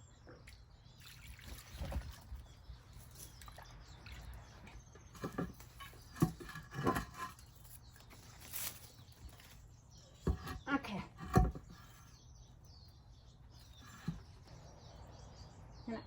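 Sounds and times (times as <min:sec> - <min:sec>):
bird bath parts knocking and scraping: 0:04.8 - 0:12.8, 0:13.4 - 0:14.6.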